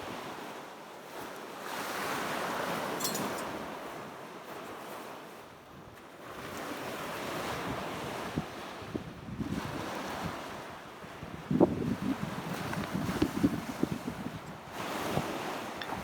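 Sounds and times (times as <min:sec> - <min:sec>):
sea waves washing on shore: 0:00.0 - 0:16.0
wind buffeting microphone: 0:07.2 - 0:16.0.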